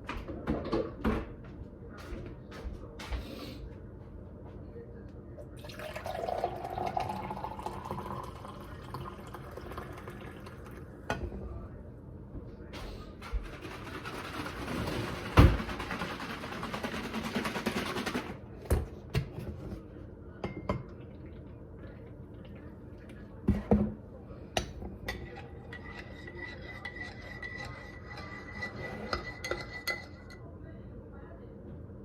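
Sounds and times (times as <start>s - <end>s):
dishes and utensils clinking: 24.6s - 30.5s.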